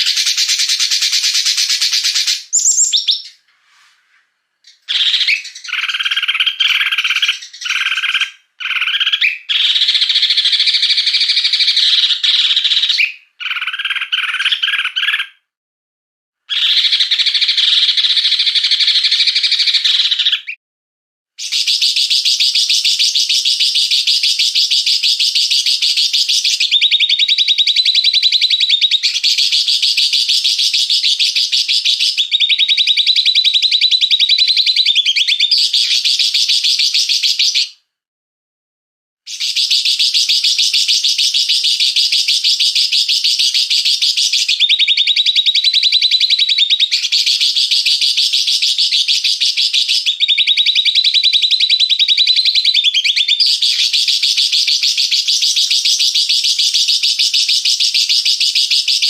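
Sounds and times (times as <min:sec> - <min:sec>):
songbirds chattering calls: 0:00.0 - 0:03.5, 0:04.6 - 0:15.2.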